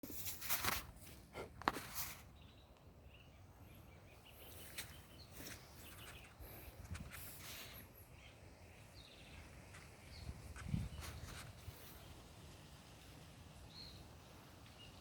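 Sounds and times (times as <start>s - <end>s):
rustling: 0.0s - 2.4s.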